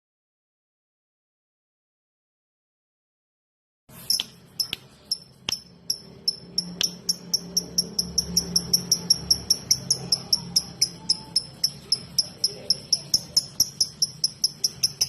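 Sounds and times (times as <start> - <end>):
bird ticking chirps: 4.0 - 15.0.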